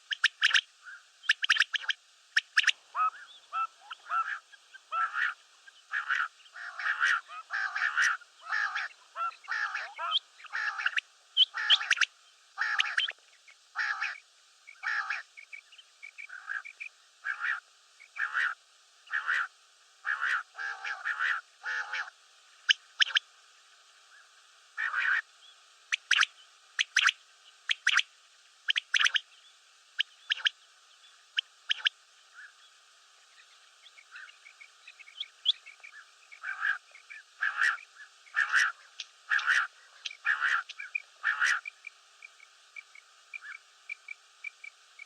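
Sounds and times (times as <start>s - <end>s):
quail calling: 0.0s - 15.5s, 16.1s - 23.2s, 24.8s - 25.2s, 25.9s - 28.0s, 28.7s - 29.2s, 30.0s - 30.5s, 33.9s - 41.8s.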